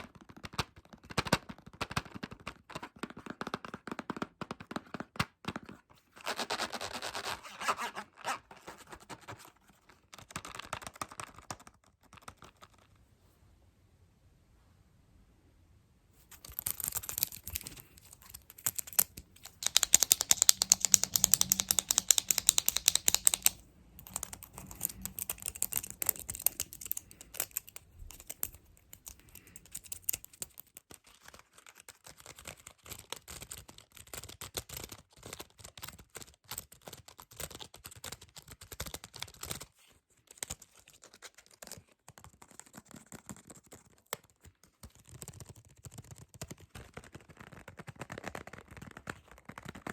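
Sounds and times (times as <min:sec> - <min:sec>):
fast tapping and scratching: 0:08.6 - 0:12.9, 0:16.3 - 0:39.7, 0:40.4 - 0:49.9.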